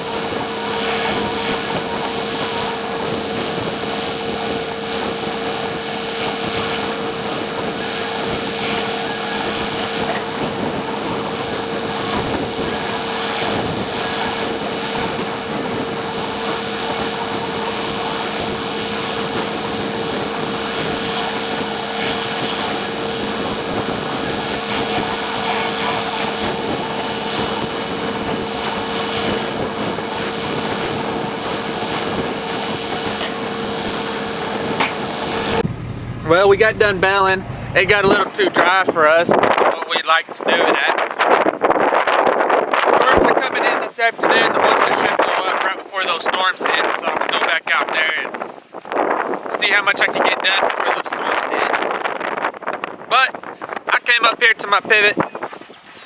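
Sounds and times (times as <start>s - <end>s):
tractor and baler running: 0.0s - 40.9s.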